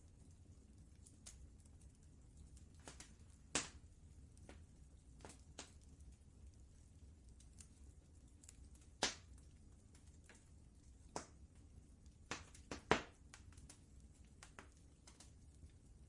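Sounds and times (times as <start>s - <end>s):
low steady rumble: 0.0s - 16.0s
wood fire crackling: 0.0s - 16.0s
sharp fire pops: 2.7s - 4.6s, 5.2s - 5.8s, 8.7s - 9.5s, 11.1s - 11.4s, 12.2s - 13.8s.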